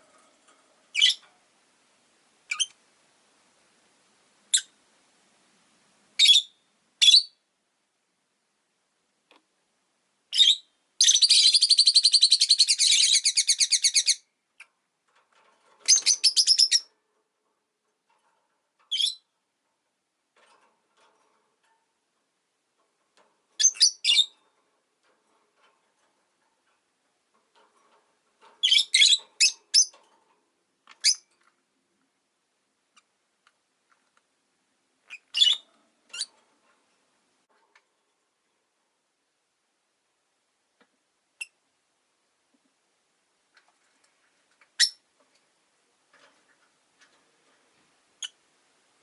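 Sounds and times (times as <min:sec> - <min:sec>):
lovebirds chirping: 0:00.9 - 0:01.2, 0:02.5 - 0:02.8, 0:10.3 - 0:14.7, 0:15.9 - 0:16.9, 0:23.6 - 0:24.4, 0:28.6 - 0:30.0, 0:35.0 - 0:36.3, 0:44.7 - 0:45.0.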